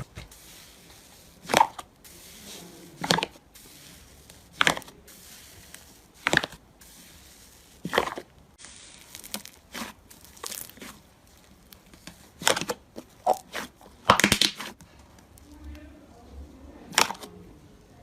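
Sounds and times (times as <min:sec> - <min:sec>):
slime popping and squelching: 0:01.4 - 0:02.4, 0:03.0 - 0:15.5.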